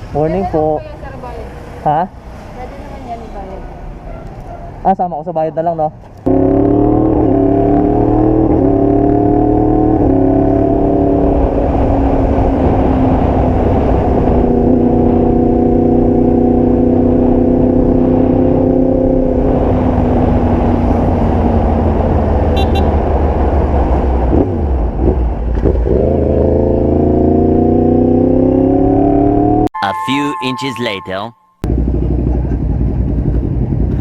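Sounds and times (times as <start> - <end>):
motorcycle engine accelerating: 6.3 - 29.7, 31.7 - 34.0.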